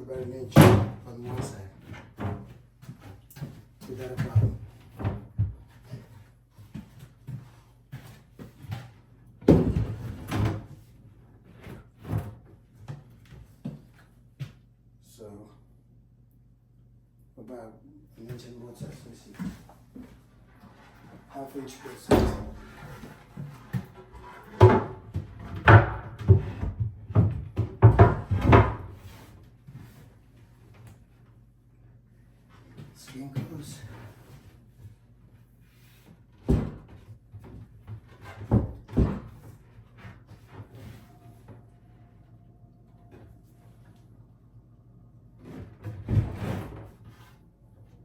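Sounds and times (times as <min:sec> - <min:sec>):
wooden cabinet knocking and bumping: 0:00.5 - 0:02.5, 0:09.4 - 0:10.7, 0:22.1 - 0:29.2, 0:36.4 - 0:41.0.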